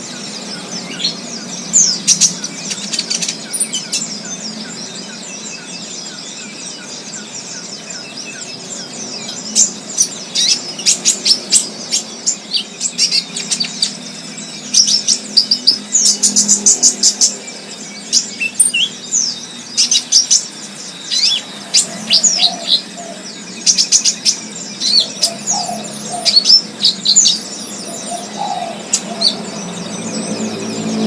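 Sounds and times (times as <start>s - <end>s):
songbirds chirping: 0.0s - 31.0s.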